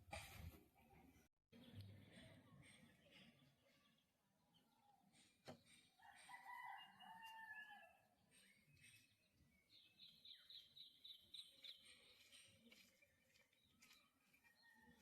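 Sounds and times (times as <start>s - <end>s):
small bird singing: 1.6s - 15.0s
rooster crowing: 6.0s - 8.1s.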